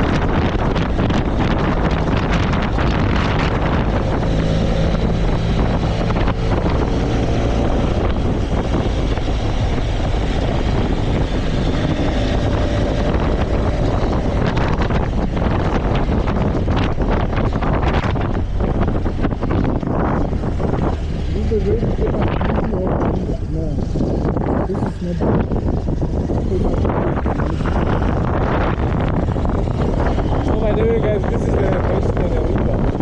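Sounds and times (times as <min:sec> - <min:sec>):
motorcycle engine cruising: 0:00.0 - 0:33.0
wind buffeting microphone: 0:00.0 - 0:33.0.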